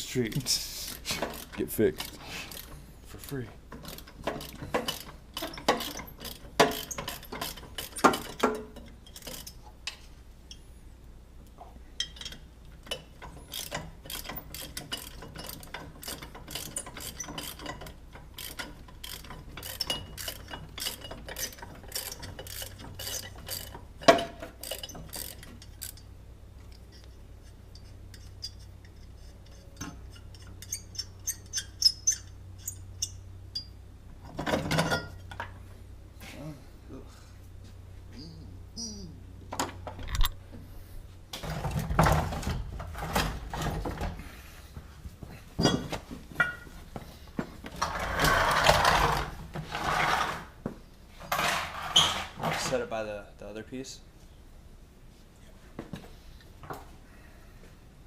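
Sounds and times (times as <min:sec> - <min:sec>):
ratchet wrench clicking: 0:00.3 - 0:09.6, 0:12.0 - 0:23.9, 0:24.6 - 0:26.1
metal tools clinking: 0:26.7 - 0:35.4.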